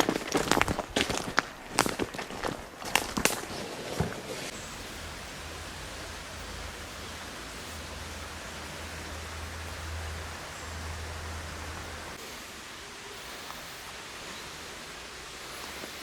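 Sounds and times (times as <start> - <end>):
steady rushing noise: 4.4 - 16.0
low rumble: 4.5 - 12.2.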